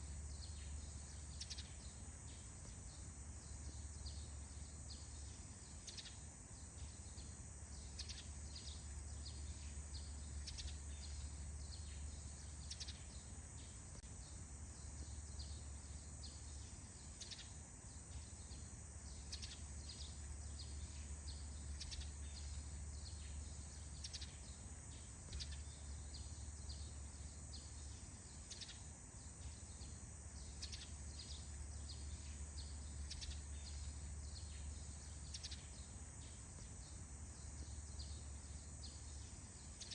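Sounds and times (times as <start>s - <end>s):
steady high-pitched hiss: 0.0s - 39.9s
birds chirping: 14.8s - 39.9s.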